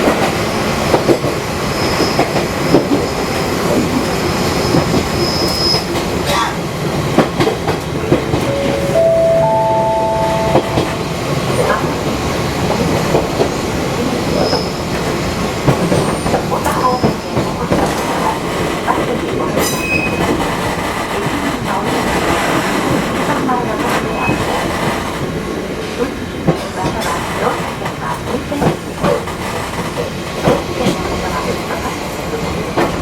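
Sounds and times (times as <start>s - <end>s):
electric train rumbling on track: 0.0s - 33.0s
rising three-note chime: 8.5s - 11.7s.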